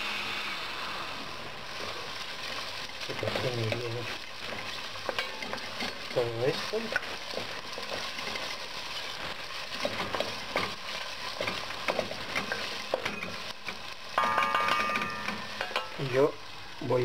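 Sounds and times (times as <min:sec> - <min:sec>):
food sizzling in a pot: 0:00.0 - 0:17.0
wooden spoon scraping a pot: 0:01.7 - 0:14.0.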